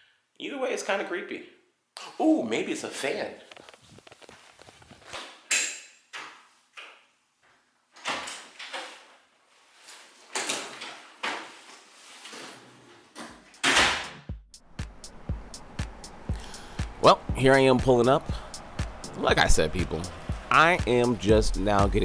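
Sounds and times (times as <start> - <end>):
rustling: 3.4 - 5.3, 8.4 - 13.2.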